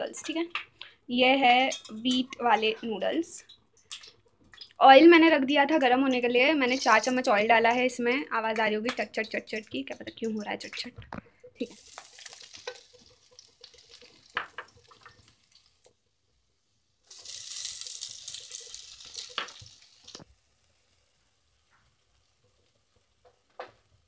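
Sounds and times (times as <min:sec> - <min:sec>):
onions sizzling in hot oil: 0:11.6 - 0:24.0
spatula knocking in pan: 0:12.5 - 0:15.3.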